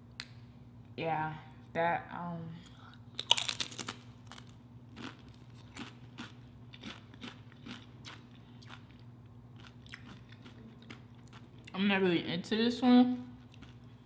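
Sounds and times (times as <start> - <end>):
tortilla chip crunching: 3.1 - 11.7.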